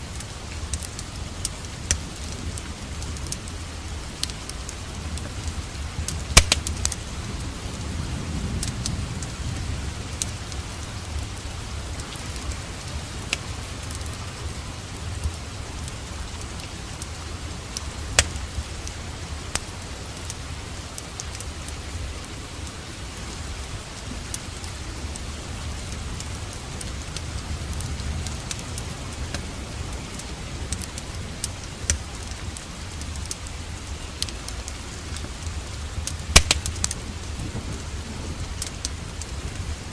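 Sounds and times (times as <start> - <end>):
steady rain hiss: 0.0 - 39.9
wood fire crackling and popping: 0.1 - 7.1, 8.6 - 14.1, 15.2 - 21.8, 23.8 - 39.9.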